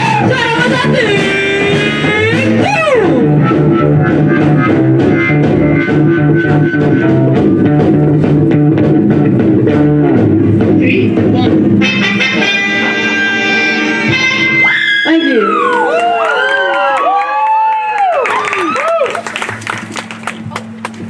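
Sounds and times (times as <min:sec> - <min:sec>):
electric guitar: 0:00.0 - 0:15.1
bass line: 0:00.0 - 0:15.7.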